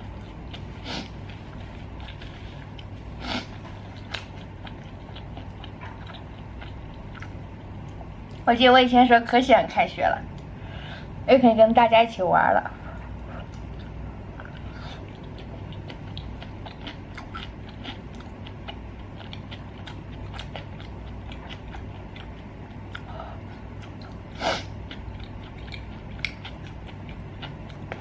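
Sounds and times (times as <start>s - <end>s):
chewing with wet mouth clicks: 0.0s - 3.0s, 3.6s - 8.4s, 13.4s - 28.0s.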